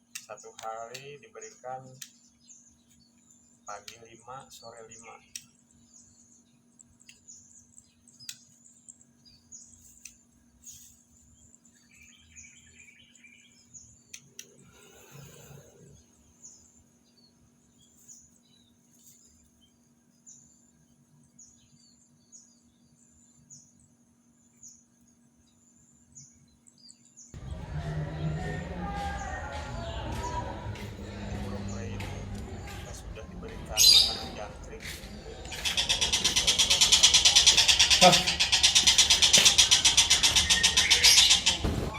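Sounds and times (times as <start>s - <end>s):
bird chirping: 0.0s - 18.8s, 19.6s - 41.9s
faint clicks: 14.1s - 14.6s.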